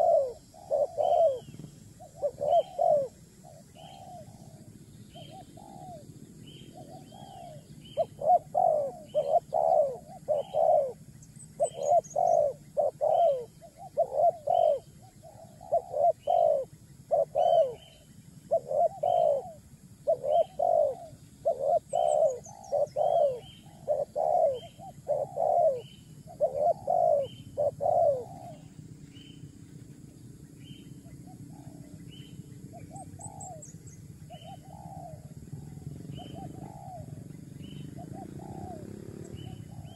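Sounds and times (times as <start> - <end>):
high bird chirp: 0.0 - 19.5
bird cooing call: 0.0 - 39.9.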